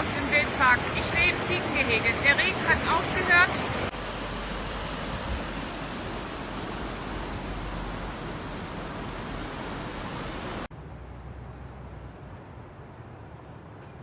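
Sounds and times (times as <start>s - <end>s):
steady rushing noise: 0.0s - 10.9s.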